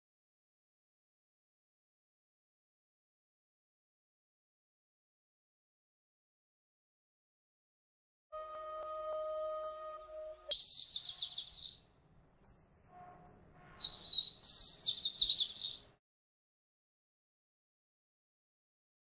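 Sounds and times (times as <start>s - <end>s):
high chirping trills: 8.4s - 15.9s.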